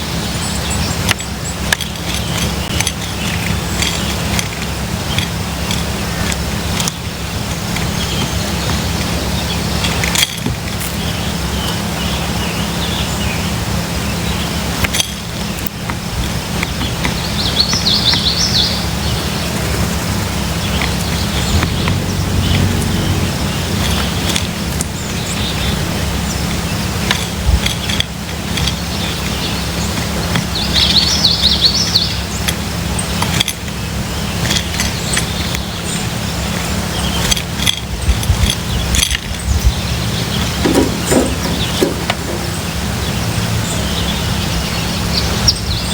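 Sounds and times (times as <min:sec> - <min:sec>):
low hum of distant traffic: 0:00.0 - 0:45.9
songbird call: 0:16.6 - 0:19.8
steady low rumble: 0:20.8 - 0:27.9, 0:39.6 - 0:44.0.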